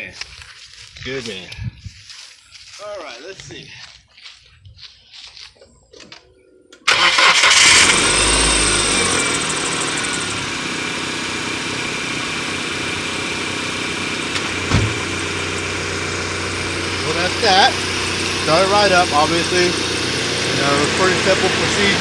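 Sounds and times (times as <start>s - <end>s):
car engine starting and idling: 6.8s - 22.0s
short thump: 14.4s - 15.2s.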